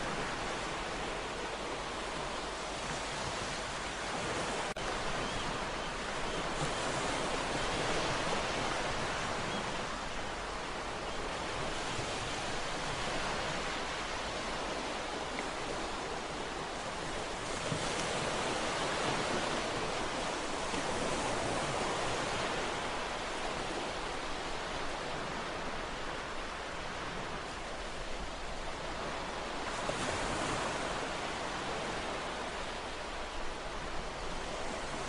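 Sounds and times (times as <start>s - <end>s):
ocean waves washing onto shore: 0.0s - 35.0s.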